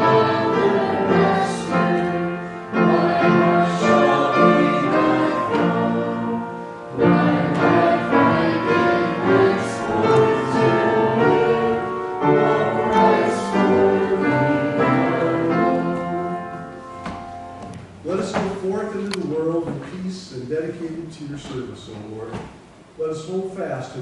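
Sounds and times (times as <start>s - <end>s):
voices singing a hymn: 0.0s - 18.5s
piano accompaniment: 0.0s - 19.7s.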